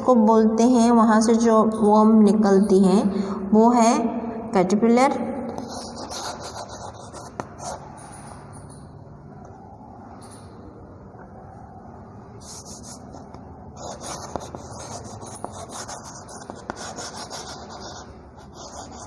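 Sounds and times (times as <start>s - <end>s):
pen scratching while writing: 5.6s - 8.0s, 12.4s - 19.0s.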